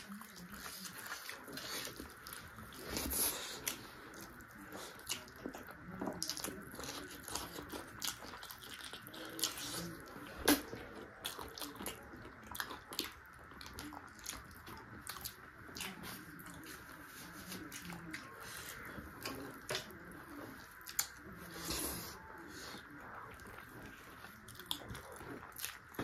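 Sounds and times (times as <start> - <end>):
person chewing and biting: 0.6 - 16.8, 23.3 - 26.0.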